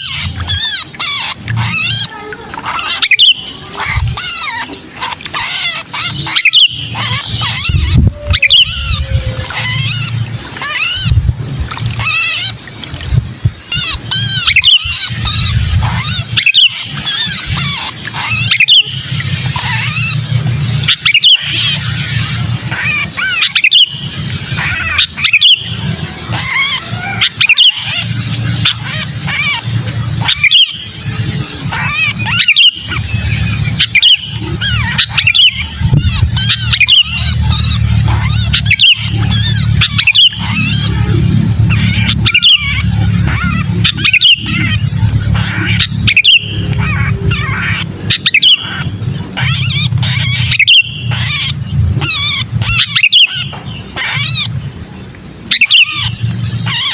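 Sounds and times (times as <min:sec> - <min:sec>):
bird distress calls: 0:00.0 - 0:56.9
steady low hum: 0:05.9 - 0:20.9, 0:28.0 - 0:55.5
low rumble: 0:06.9 - 0:12.2, 0:31.0 - 0:53.0.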